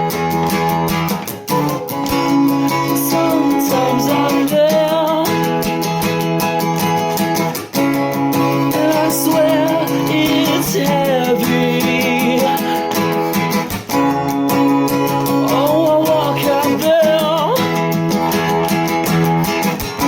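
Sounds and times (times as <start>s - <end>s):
acoustic guitar strumming: 0.0s - 20.0s
person singing: 1.5s - 5.9s, 8.4s - 18.7s.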